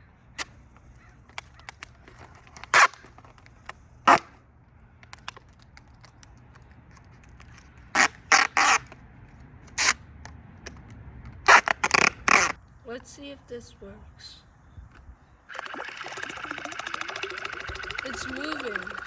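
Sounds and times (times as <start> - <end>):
crow cawing: 1.0 - 1.8.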